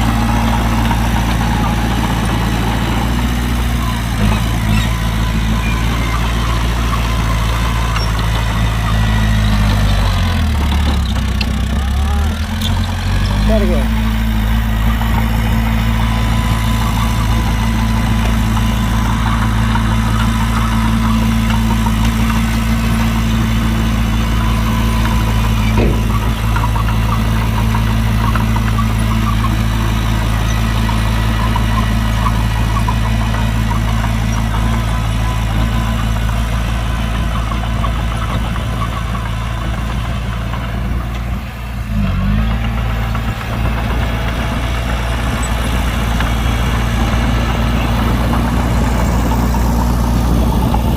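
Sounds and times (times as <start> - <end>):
diesel engine idling: 0.0 - 50.9.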